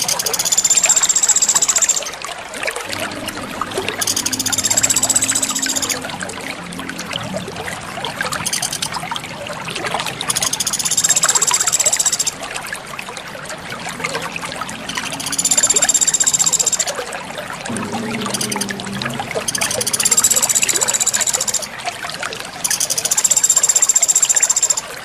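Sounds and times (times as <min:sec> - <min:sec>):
water trickling: 0:00.0 - 0:25.0.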